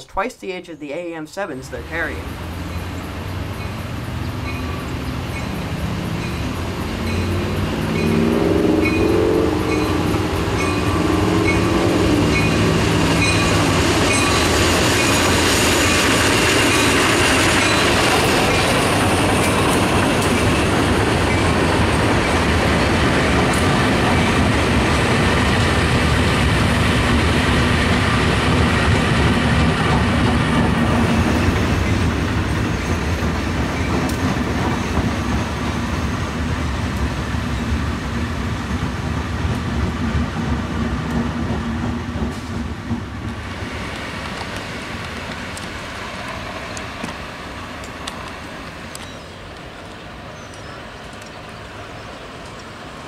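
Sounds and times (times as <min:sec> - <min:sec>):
freight train rumble and wheel clatter: 0:01.7 - 0:53.0
engine or horn note: 0:07.6 - 0:12.4.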